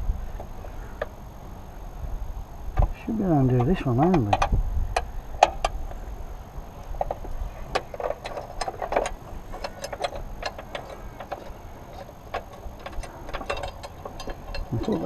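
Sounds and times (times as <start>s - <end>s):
spanner clicking on metal nut: 7.8s - 15.0s.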